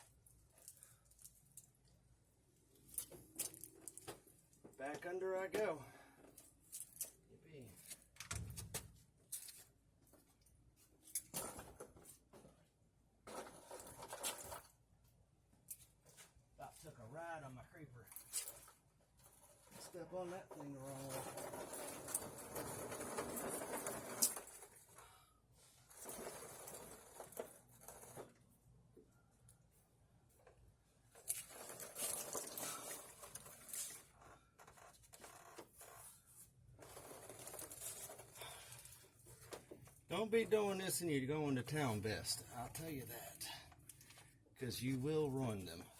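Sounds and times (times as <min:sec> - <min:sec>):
rustling and scraping: 0:06.3 - 0:14.8, 0:18.1 - 0:45.9.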